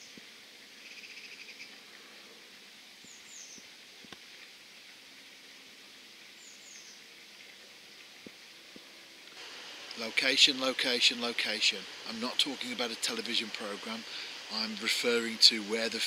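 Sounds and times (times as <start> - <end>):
small birds double chirp: 0.8 - 1.8, 3.0 - 3.7, 6.4 - 7.1.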